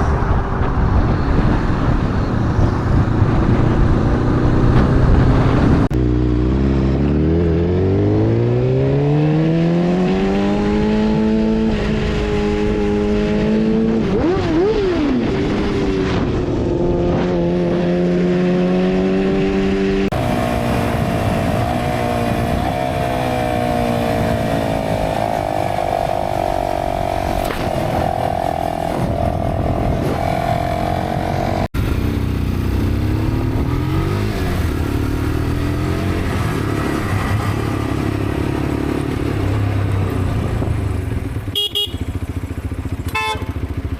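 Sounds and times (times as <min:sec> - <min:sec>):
motorcycle engine accelerating: 0:00.0 - 0:43.9
motorcycle engine revving: 0:00.6 - 0:43.9
motorcycle engine at high pitch: 0:01.0 - 0:43.9.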